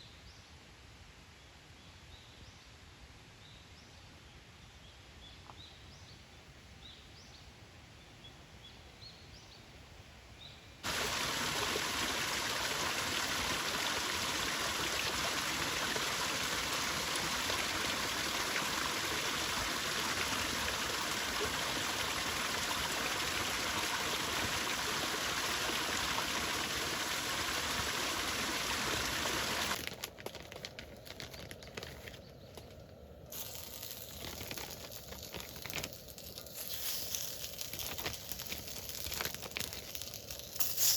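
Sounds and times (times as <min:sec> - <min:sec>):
stream water rushing: 0:10.8 - 0:30.0.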